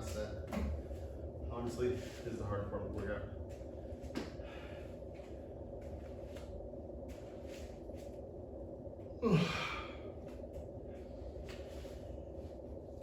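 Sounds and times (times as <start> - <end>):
man breathing hard: 4.2 - 5.4, 9.2 - 10.4
man groaning: 9.2 - 10.0.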